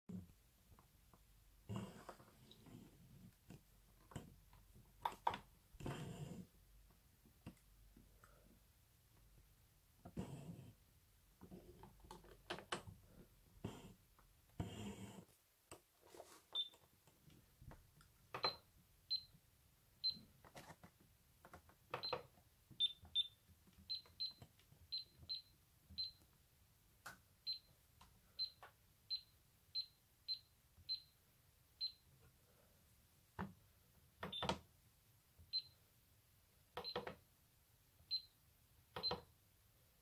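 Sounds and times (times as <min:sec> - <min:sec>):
washing machine short high beeps: 0:22.8 - 0:26.2.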